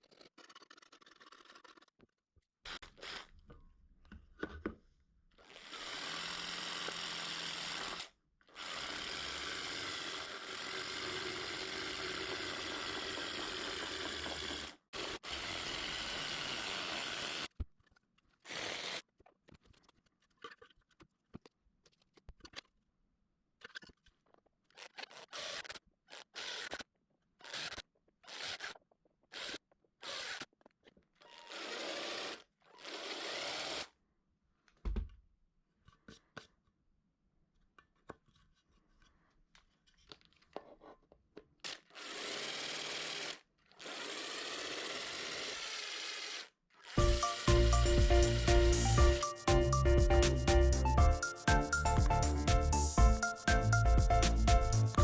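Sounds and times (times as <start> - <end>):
power tool running: 5.6 - 17.5, 47.0 - 49.0.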